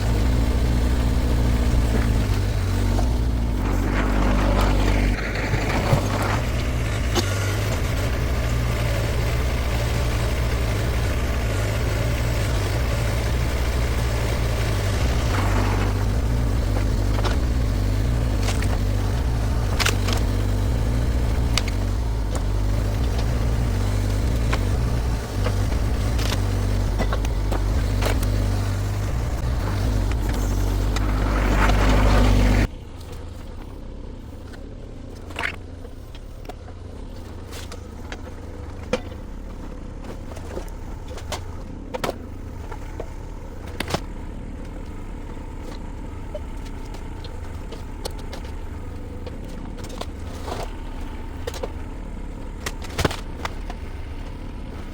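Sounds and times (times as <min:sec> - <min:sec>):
excavator diesel engine running: 0:00.0 - 0:54.9
sharp knocks and cracks: 0:49.2 - 0:54.4.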